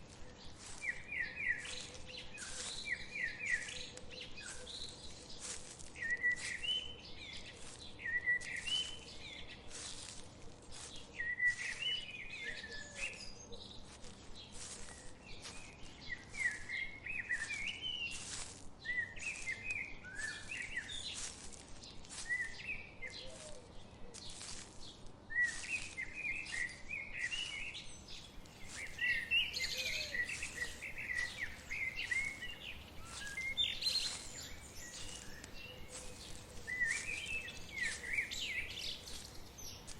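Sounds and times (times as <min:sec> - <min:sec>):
songbirds chirping and singing: 0:00.5 - 0:10.1, 0:25.5 - 0:39.9.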